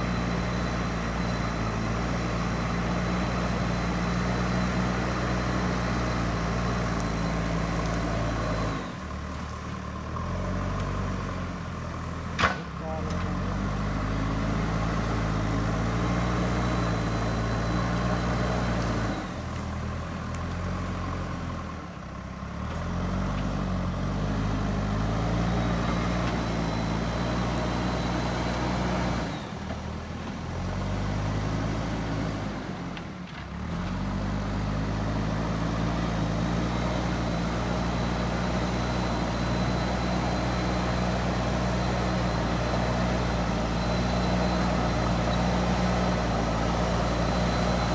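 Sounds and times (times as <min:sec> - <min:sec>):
diesel engine revving: 0:00.0 - 0:47.9.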